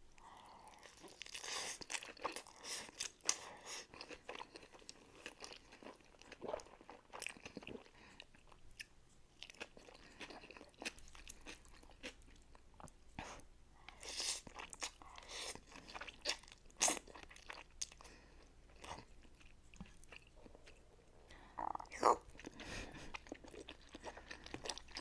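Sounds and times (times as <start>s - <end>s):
person chewing and biting: 0.9s - 12.4s, 22.3s - 25.0s.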